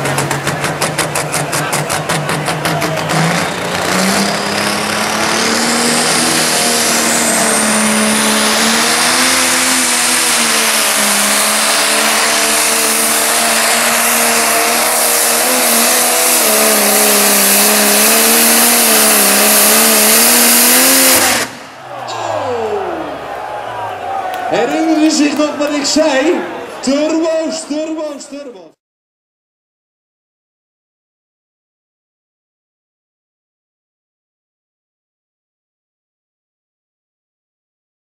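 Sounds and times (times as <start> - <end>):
tractor engine revving: 0.0 - 26.1.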